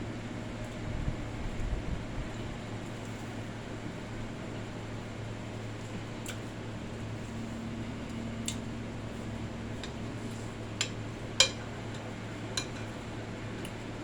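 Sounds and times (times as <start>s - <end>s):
low fan hum: 0.0s - 14.0s
cutlery clicking on a plate: 10.8s - 11.6s, 12.6s - 12.9s.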